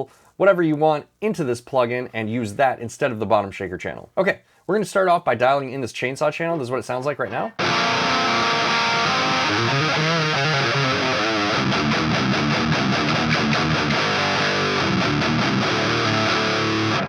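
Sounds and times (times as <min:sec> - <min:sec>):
distorted electric guitar riff: 0:07.6 - 0:17.0.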